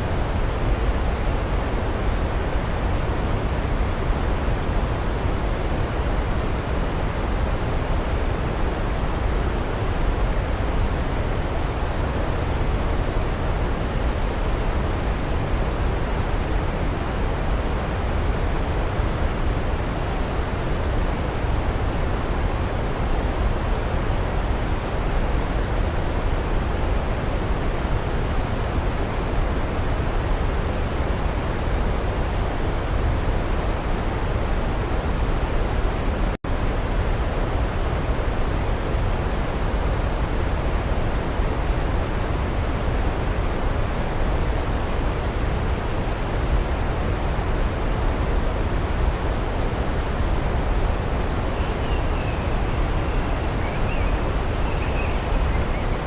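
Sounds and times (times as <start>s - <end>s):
waterfall rushing: 41.8s - 56.0s.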